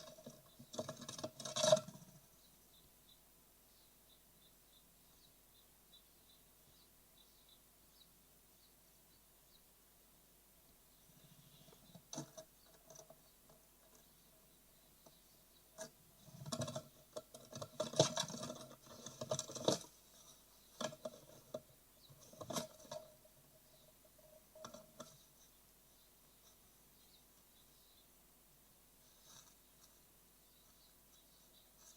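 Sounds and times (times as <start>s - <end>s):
birds scratching and tapping in nest box: 0.0s - 2.3s, 11.2s - 14.2s, 15.0s - 25.5s
faint steady hum: 0.0s - 31.9s.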